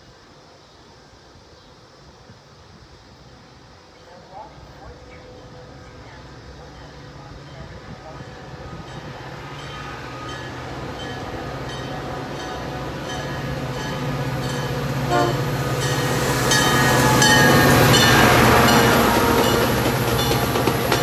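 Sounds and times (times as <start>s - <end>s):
diesel locomotive passing: 3.2s - 21.0s
train horn: 15.0s - 15.8s, 16.5s - 20.7s.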